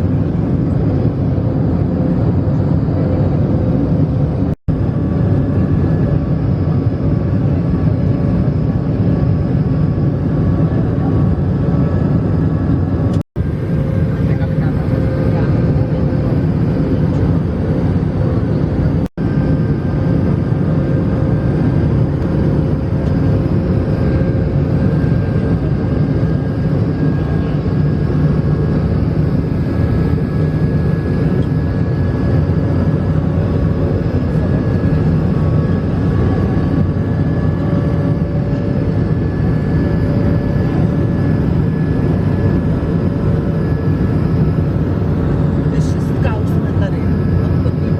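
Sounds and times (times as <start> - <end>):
faint jet engine whine: 0.0 - 47.9.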